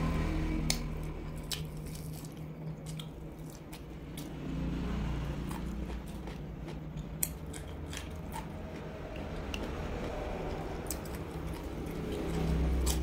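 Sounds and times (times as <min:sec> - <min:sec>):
steady low hum: 0:00.0 - 0:13.0
chewing with wet mouth clicks: 0:01.4 - 0:04.3, 0:05.5 - 0:13.0.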